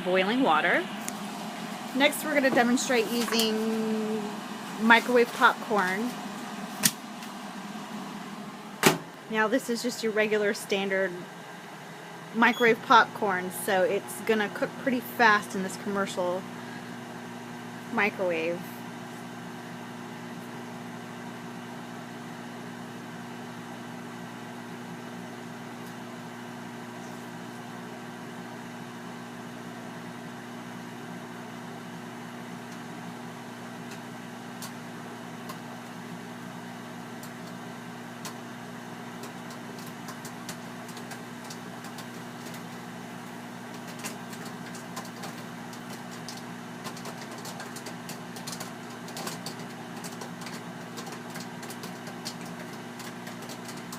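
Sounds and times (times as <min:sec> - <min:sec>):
microwave humming: 0:00.0 - 0:53.9
popcorn popping: 0:02.0 - 0:07.4, 0:37.0 - 0:53.9.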